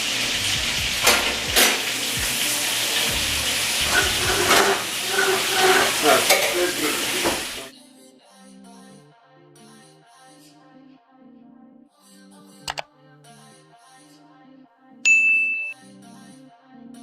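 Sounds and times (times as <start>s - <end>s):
meatballs sizzling in a pan: 0.0s - 7.7s
quiet background music: 0.0s - 17.0s.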